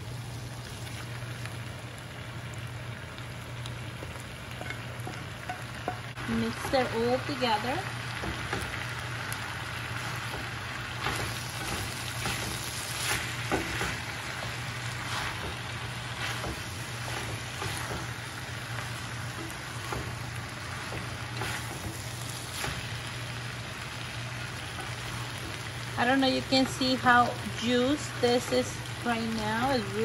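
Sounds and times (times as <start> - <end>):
food sizzling in a frying pan: 0.0 - 30.0
wooden spoon scraping a pan: 10.0 - 23.1.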